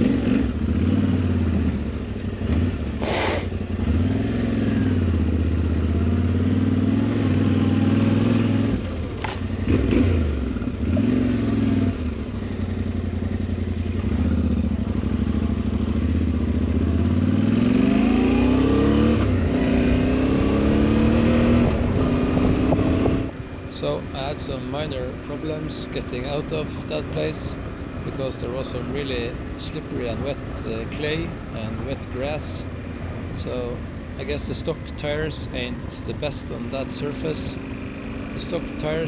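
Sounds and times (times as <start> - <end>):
motorcycle engine revving: 0.0 - 23.5.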